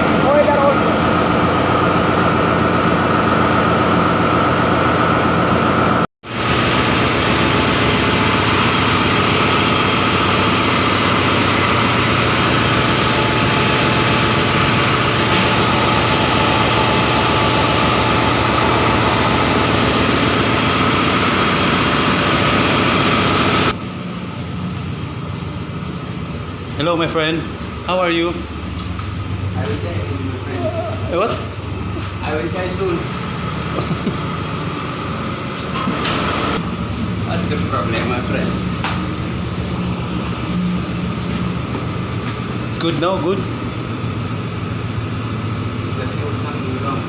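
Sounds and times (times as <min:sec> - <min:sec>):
ship engine room machinery: 0:00.0 - 0:47.0.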